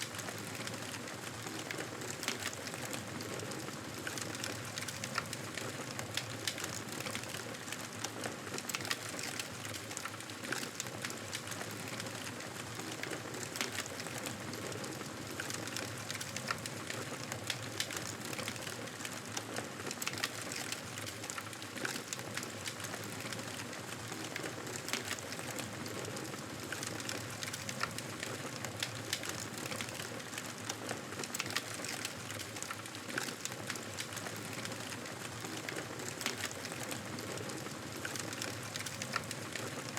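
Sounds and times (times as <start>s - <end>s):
campfire crackling and popping: 8.6s - 18.8s, 26.6s - 39.7s.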